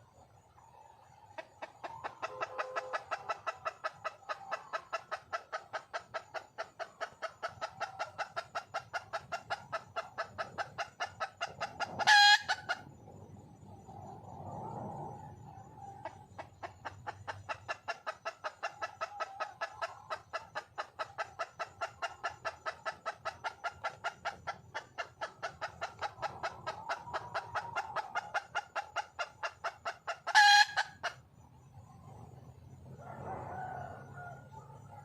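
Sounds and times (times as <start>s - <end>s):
hen clucking: 0.6s - 12.9s, 15.6s - 31.2s.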